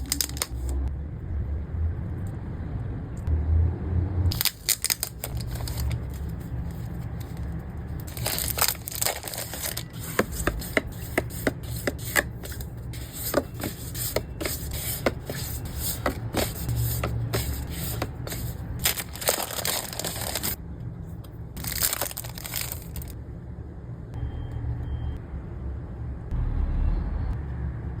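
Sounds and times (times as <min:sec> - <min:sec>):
packing materials crinkling and tearing: 0:00.0 - 0:00.8, 0:04.3 - 0:20.6, 0:21.6 - 0:23.2.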